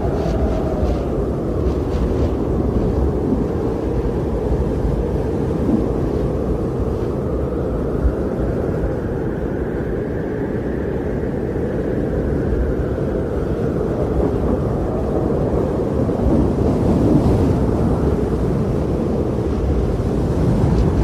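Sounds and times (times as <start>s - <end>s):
wind roaring in snowstorm: 0.0s - 21.0s.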